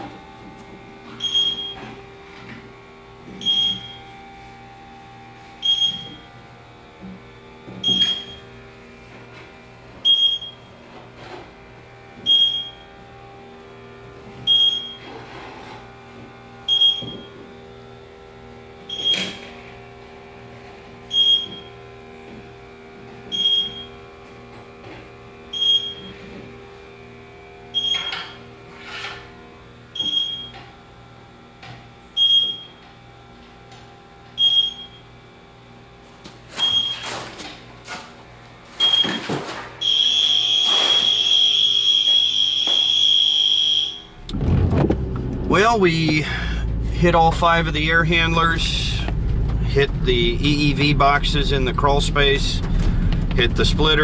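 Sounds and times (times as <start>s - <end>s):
leak detector beeping: 1.2s - 1.9s, 3.4s - 4.1s, 5.6s - 6.3s, 7.8s - 8.5s, 10.0s - 10.7s, 12.2s - 12.9s, 14.4s - 15.1s, 16.7s - 17.4s, 18.8s - 19.5s, 21.1s - 21.7s, 23.3s - 24.0s, 25.5s - 26.1s, 27.7s - 28.4s, 30.0s - 30.6s, 32.2s - 32.8s, 34.4s - 35.1s, 36.6s - 37.1s, 38.8s - 39.2s, 39.8s - 44.2s
low hum: 43.9s - 54.0s.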